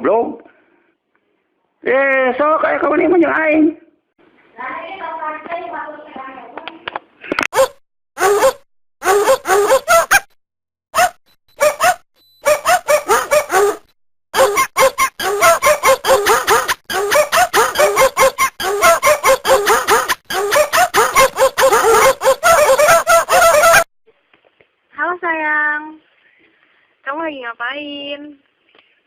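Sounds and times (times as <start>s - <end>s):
dog yapping: 7.5s - 10.3s, 11.0s - 23.9s.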